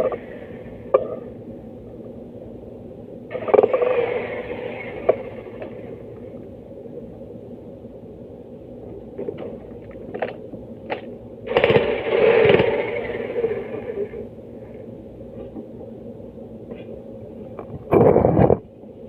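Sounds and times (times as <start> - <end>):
mechanical hum: 0.0 - 19.0
jackhammer breaking stone: 11.5 - 13.6.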